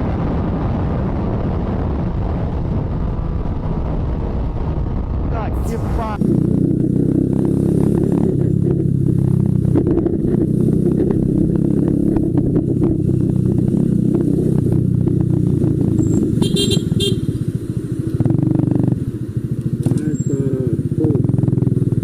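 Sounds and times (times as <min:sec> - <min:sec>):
motorcycle engine running: 0:05.6 - 0:22.0.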